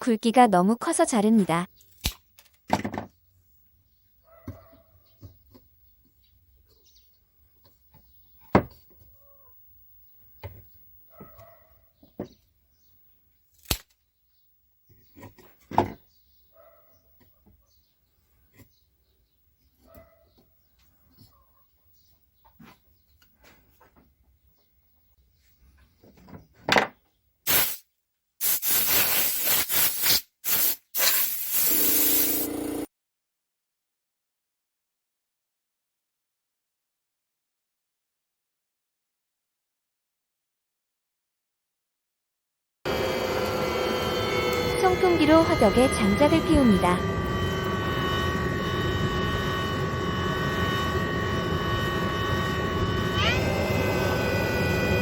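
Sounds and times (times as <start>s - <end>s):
short squeaky sounds: 28.4s - 32.5s
steady hum: 32.0s - 32.9s, 42.9s - 55.0s.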